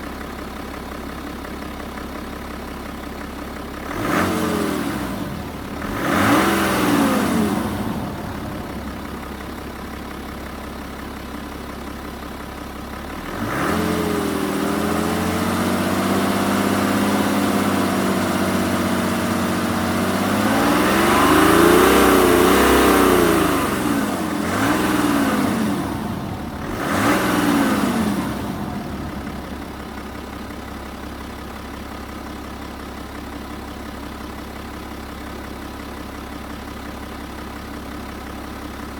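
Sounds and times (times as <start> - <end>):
diesel engine revving: 3.7 - 10.2, 13.0 - 33.3.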